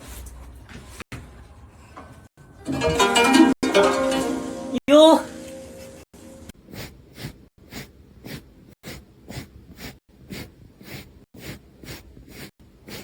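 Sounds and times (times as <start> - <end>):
animal breathing hard: 6.5 - 13.0.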